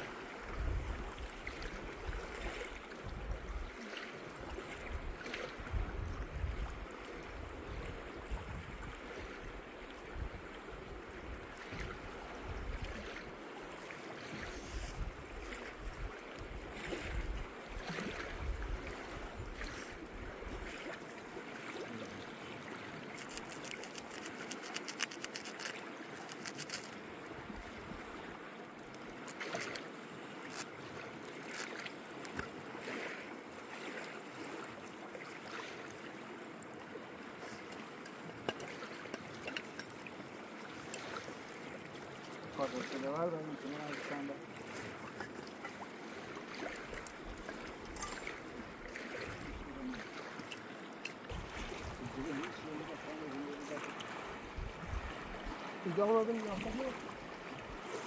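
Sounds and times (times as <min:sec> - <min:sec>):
river water running: 0:00.0 - 0:58.0
wind buffeting microphone: 0:00.5 - 0:02.3, 0:03.0 - 0:03.7, 0:04.9 - 0:13.1, 0:14.6 - 0:20.7, 0:51.3 - 0:53.0, 0:54.1 - 0:55.7
small clicks and knocks: 0:23.2 - 0:27.0.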